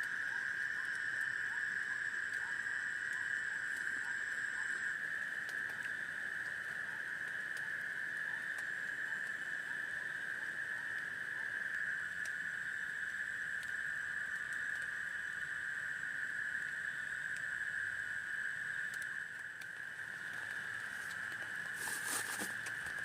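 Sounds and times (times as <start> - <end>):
faint ticks of drops: 11.7 - 12.4
heavy rain hissing: 20.7 - 22.8.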